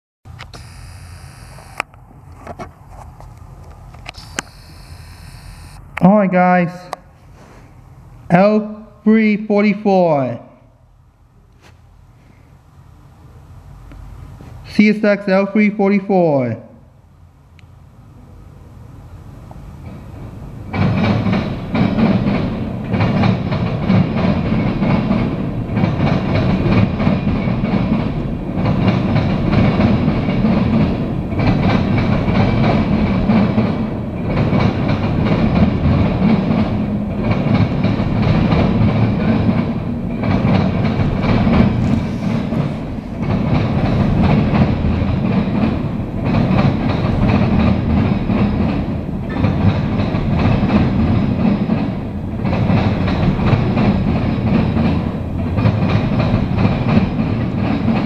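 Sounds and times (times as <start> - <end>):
freight train wheels clattering: 19.4 - 58.0.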